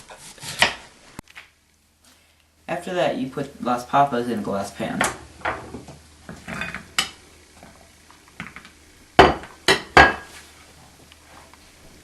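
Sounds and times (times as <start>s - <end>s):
kitchenware clinking: 5.0s - 7.2s.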